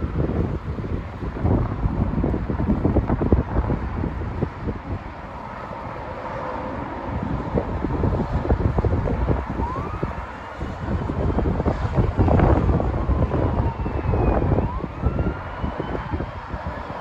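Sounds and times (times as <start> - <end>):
wind buffeting microphone: 0.0 - 17.0
distant siren wailing: 8.6 - 17.0.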